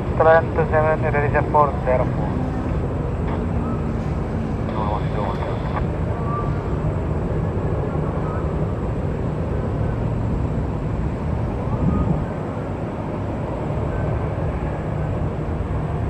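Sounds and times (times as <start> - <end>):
airport outdoor rumble and hiss: 0.0 - 16.0.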